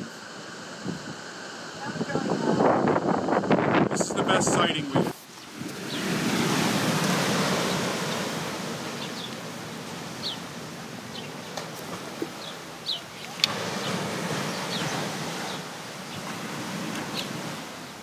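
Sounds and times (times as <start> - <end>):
wind hiss: 0.0 - 18.0
small birds chirping: 5.3 - 6.2, 7.5 - 16.3, 17.0 - 18.0.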